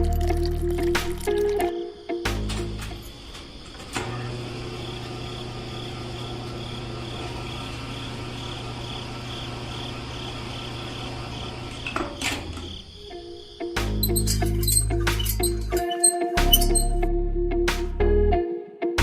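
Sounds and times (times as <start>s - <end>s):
faint high pulsing chirp: 14.0s - 17.0s.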